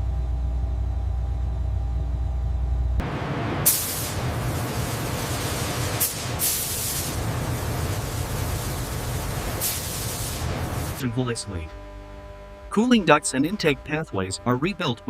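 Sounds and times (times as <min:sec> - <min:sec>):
low hum: 0:00.0 - 0:15.0
compressed air hissing: 0:03.6 - 0:11.0
spraying bursts of air: 0:03.6 - 0:11.0.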